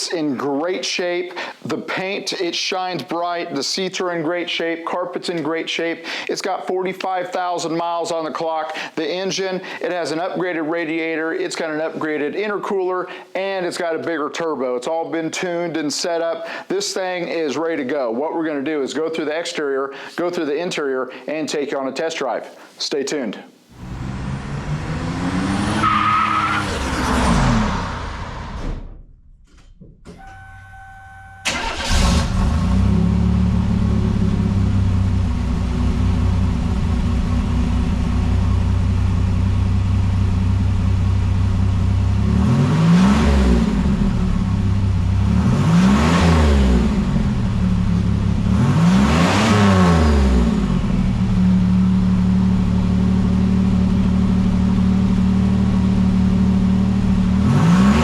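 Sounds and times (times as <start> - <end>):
car engine revving: 23.8 - 29.2, 31.4 - 58.0
car engine starting and idling: 23.8 - 58.0.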